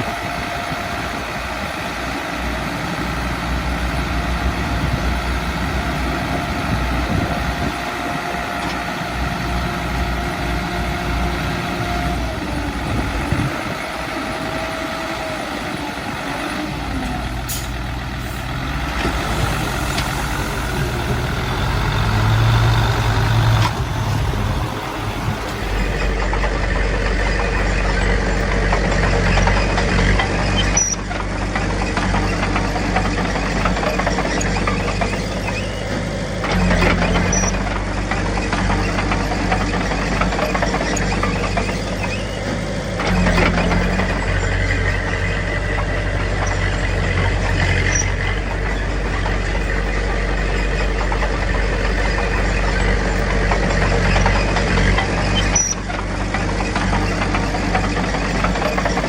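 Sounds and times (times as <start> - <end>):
heavy diesel machinery engines: 0.0 - 59.0.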